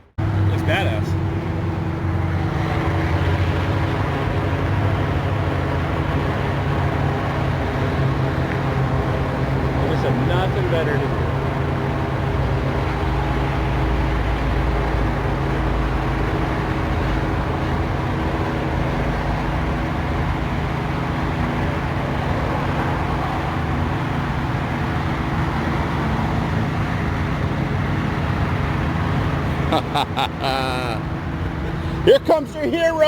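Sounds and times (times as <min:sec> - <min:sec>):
helicopter engine and rotor drone: 0:00.0 - 0:33.0.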